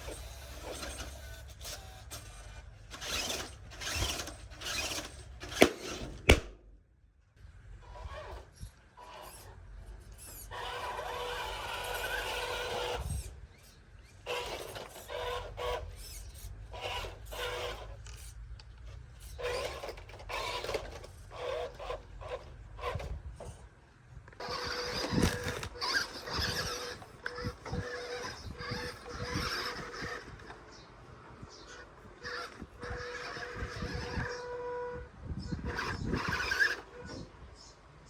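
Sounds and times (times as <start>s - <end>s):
toy truck motor whining: 0.0s - 6.3s, 7.7s - 37.7s
tyres scrabbling over dirt: 10.2s - 23.7s, 24.3s - 34.9s.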